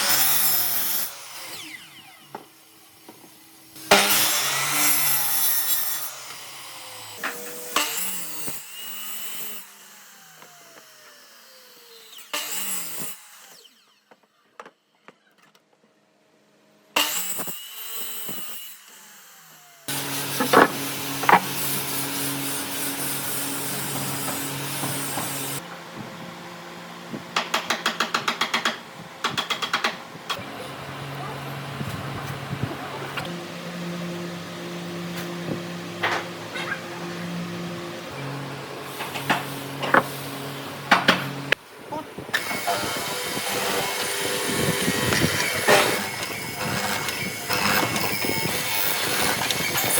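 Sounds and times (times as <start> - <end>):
power tools cutting wood: 0.0 - 14.7, 17.0 - 49.9
motor winding down: 42.3 - 49.9.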